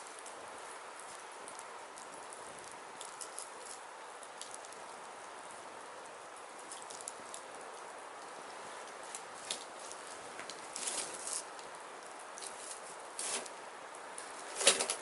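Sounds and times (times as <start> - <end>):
fire crackles and pops: 0.0 - 15.0
firewood burning hiss: 0.0 - 15.0.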